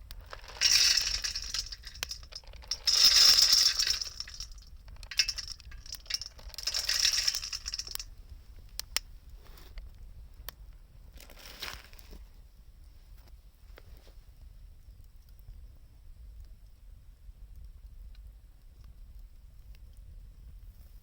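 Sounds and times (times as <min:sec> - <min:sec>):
wood fire crackling: 0:00.0 - 0:08.0
crunching and clinking: 0:00.0 - 0:08.1.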